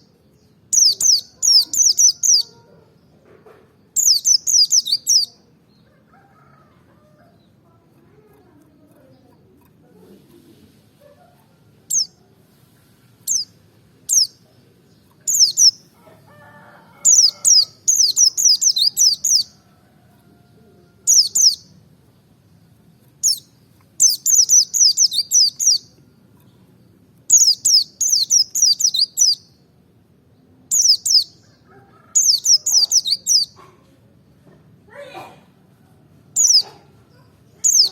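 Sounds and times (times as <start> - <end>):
bird chirping and twittering: 0.0 - 2.8, 3.9 - 5.4, 11.9 - 12.2, 13.3 - 16.0, 17.0 - 19.6, 21.1 - 21.8, 23.2 - 26.7, 27.3 - 29.6, 30.7 - 33.7, 36.3 - 37.9.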